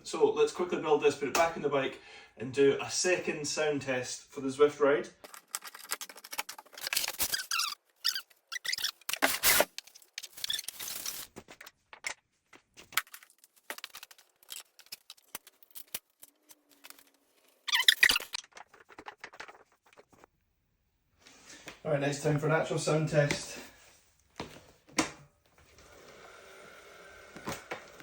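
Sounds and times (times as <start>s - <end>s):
parts scraping: 5.2s - 12.1s.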